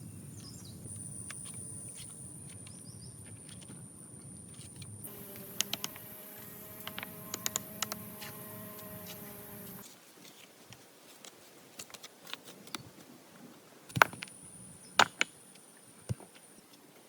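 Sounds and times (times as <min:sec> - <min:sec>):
sharp clicks: 0:05.1 - 0:09.8.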